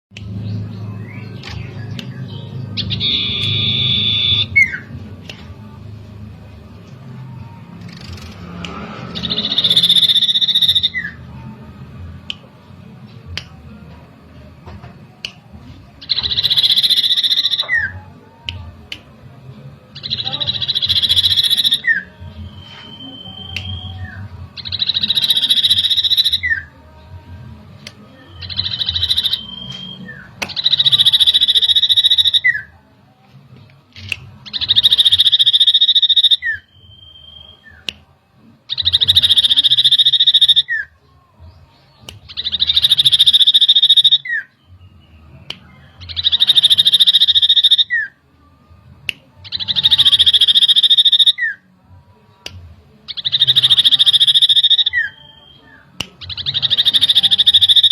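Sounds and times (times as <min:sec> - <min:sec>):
bird trilling rattle call: 0:09.2 - 0:11.1, 0:16.0 - 0:17.9, 0:20.1 - 0:22.0, 0:24.6 - 0:26.6, 0:28.4 - 0:32.6, 0:34.5 - 0:36.6, 0:38.7 - 0:40.8, 0:42.4 - 0:44.4, 0:46.1 - 0:48.0, 0:49.5 - 0:51.4, 0:53.1 - 0:55.2, 0:56.4 - 0:57.9.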